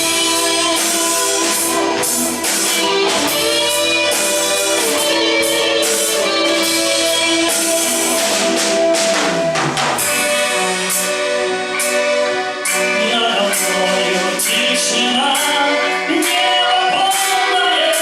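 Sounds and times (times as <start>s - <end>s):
band playing sustained chords: 0.0s - 18.0s
drums and cymbals: 0.0s - 18.0s.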